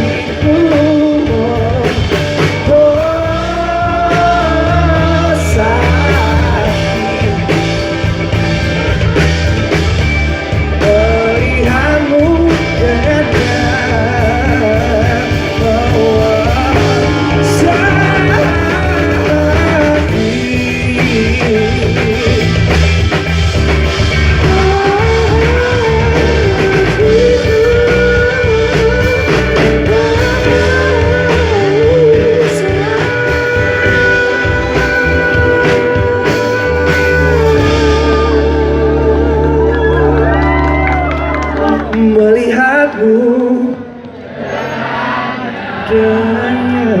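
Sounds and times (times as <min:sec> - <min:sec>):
live rock band playing: 0:00.0 - 0:47.0
wavering sliding melody: 0:15.1 - 0:21.0.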